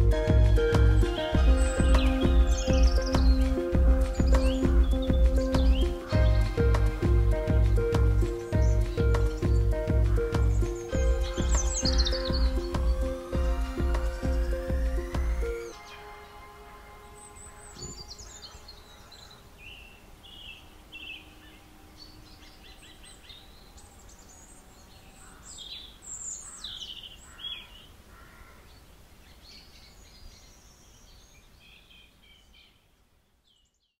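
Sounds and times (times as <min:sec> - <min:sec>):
low background rumble: 0:00.0 - 0:15.6
small birds chirping: 0:00.0 - 0:34.0.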